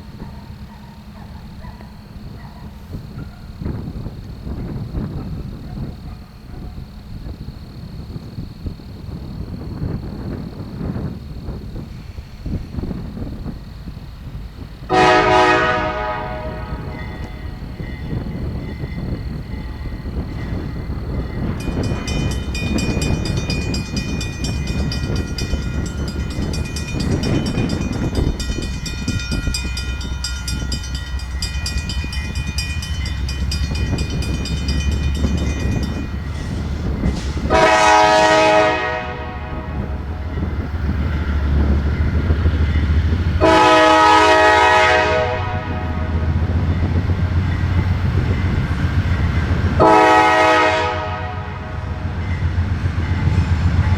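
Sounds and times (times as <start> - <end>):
diesel locomotives rumbling past: 0.0 - 53.9
wheels ticking and squealing on rail: 0.0 - 53.9
locomotive horn blasts: 14.9 - 18.6, 35.2 - 40.5, 43.4 - 46.4, 49.8 - 52.0.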